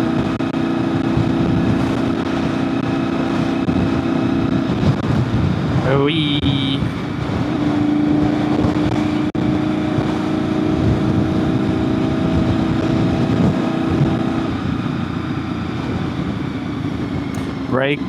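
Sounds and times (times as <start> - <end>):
motorcycle engine running: 0.0 - 18.0
wind noise: 0.0 - 18.0.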